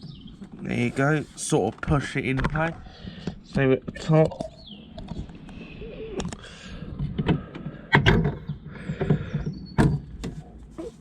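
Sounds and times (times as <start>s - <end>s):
trim rubbing and scraping: 0.4s - 2.6s, 7.0s - 11.0s.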